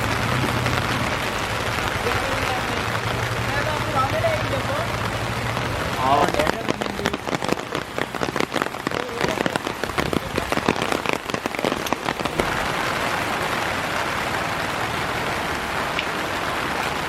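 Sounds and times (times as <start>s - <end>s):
heavy rain drops striking surface: 0.0s - 17.0s
steady hiss of rain: 0.0s - 17.0s.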